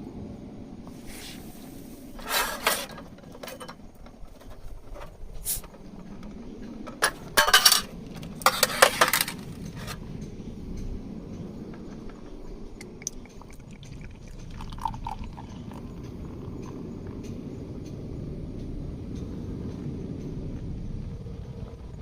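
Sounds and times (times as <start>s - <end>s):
tableware and glassware clinking: 2.2s - 3.9s, 7.0s - 10.0s, 13.0s - 15.8s.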